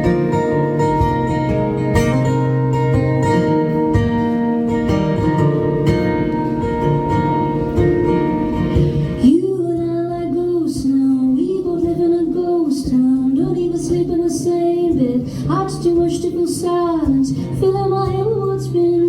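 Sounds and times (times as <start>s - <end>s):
guitar playing: 0.0s - 19.0s
woman singing: 9.2s - 19.0s.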